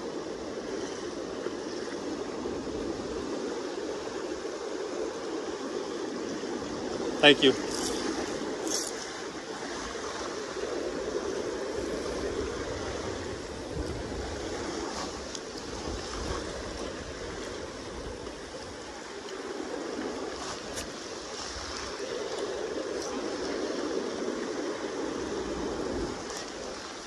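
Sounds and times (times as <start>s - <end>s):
river current rushing: 0.0s - 27.0s.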